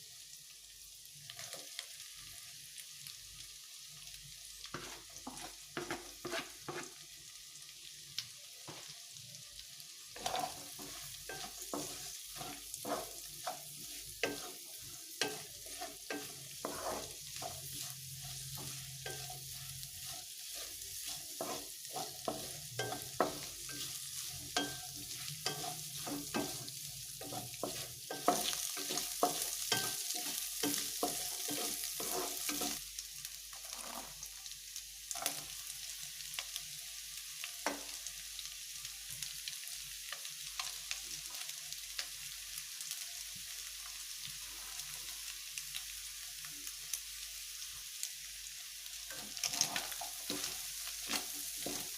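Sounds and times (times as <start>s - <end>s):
food sizzling in a pan: 0.0s - 51.9s
spatula scraping a pan: 4.7s - 7.0s, 10.1s - 32.8s, 33.5s - 34.3s, 35.1s - 35.5s, 49.1s - 51.9s.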